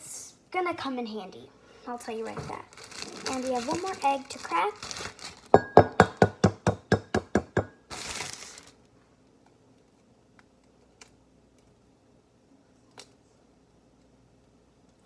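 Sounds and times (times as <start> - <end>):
eggshell crunching: 2.6 - 8.6
egg tapping on a mug rim: 5.6 - 7.7.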